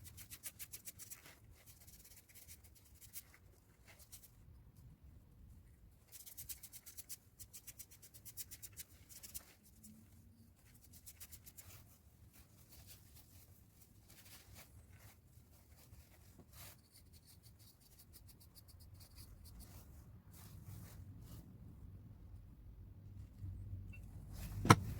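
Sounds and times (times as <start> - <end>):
light scratching strokes: 6.0 - 21.7.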